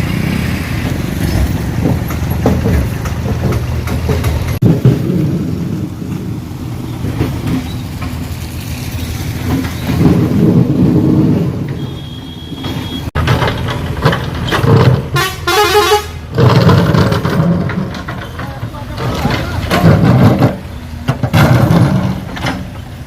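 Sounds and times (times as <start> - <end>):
road traffic engines: 0.0 - 23.0
vehicle horn honking: 11.8 - 13.1, 15.1 - 16.2.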